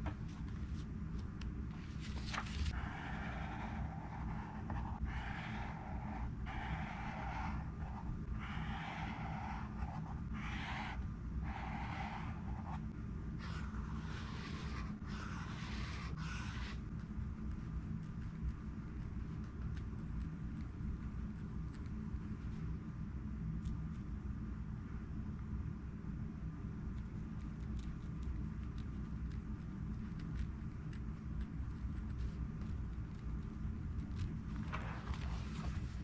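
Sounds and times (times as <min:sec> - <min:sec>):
steady low hum: 0:00.0 - 0:36.0
highlighter dragged across paper: 0:02.4 - 0:12.8, 0:13.4 - 0:16.9.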